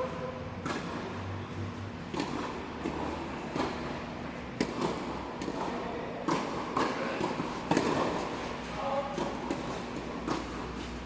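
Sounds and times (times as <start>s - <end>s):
tennis ball bouncing on court: 2.1s - 8.4s, 9.2s - 10.9s
tennis ball struck by rackets: 4.6s - 8.4s.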